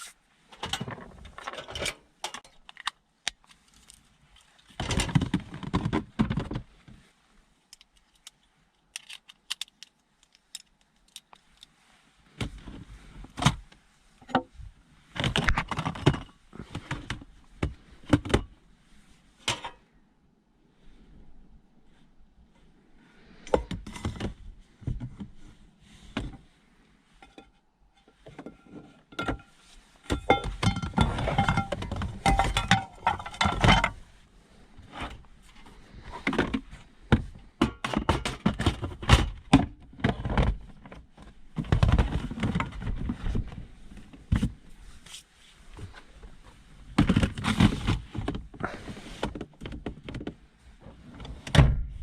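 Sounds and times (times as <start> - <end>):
objects knocking and clattering: 4.8 - 6.6, 27.2 - 34.0, 37.2 - 40.6.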